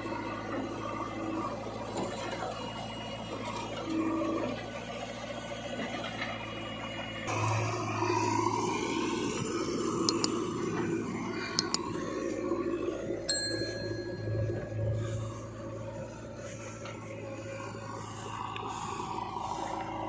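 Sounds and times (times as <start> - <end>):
diesel engine running: 0.0 - 20.0
light metallic clinks: 10.1 - 10.4, 11.6 - 11.8, 13.3 - 15.0.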